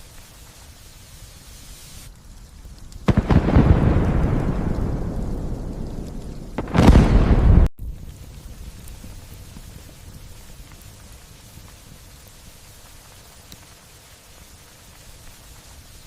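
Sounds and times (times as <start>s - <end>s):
light rain: 0.0s - 16.0s
thunder cracks and rumbling: 3.0s - 10.3s.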